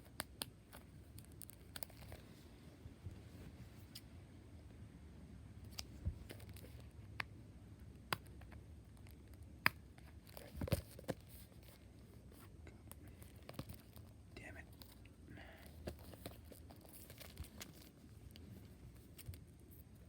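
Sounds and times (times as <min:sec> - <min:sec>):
packaging rustling and crinkling: 0:15.6 - 0:19.8.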